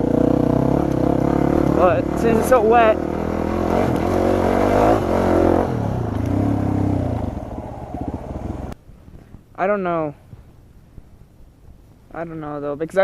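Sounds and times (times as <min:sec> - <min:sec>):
dirt bike engine running: 0:00.0 - 0:09.4.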